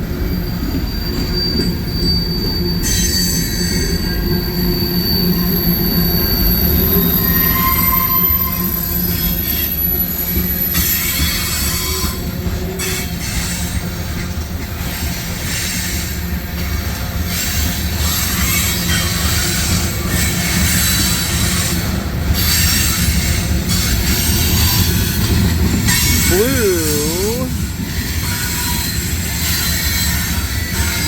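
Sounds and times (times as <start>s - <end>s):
freight train wheels rumbling: 0.0s - 31.0s
high wheel squeal: 0.3s - 13.8s.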